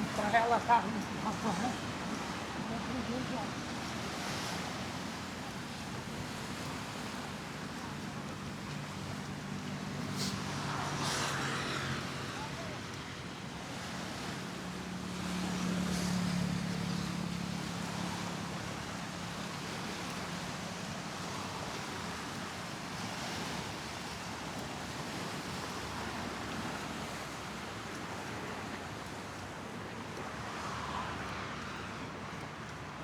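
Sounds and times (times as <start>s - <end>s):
road traffic: 0.0s - 18.9s, 25.6s - 33.0s
wind: 0.0s - 33.0s.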